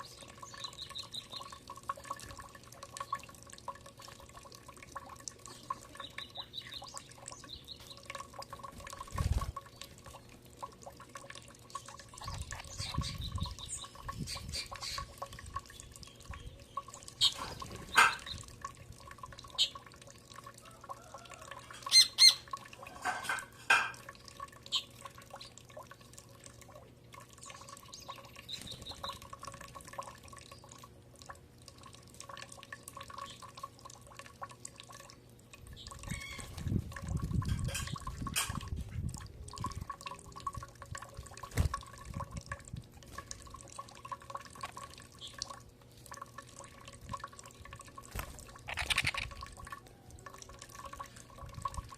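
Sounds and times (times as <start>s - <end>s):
birds chirping: 0.0s - 1.6s, 5.4s - 8.2s, 11.7s - 18.5s
faint steady hum: 0.0s - 51.9s.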